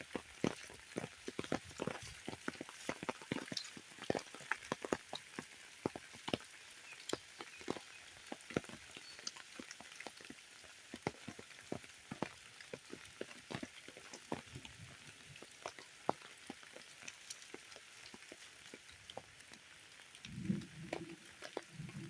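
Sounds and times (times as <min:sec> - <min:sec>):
rain falling: 0:00.0 - 0:22.0
raindrops striking surfaces: 0:00.0 - 0:22.0.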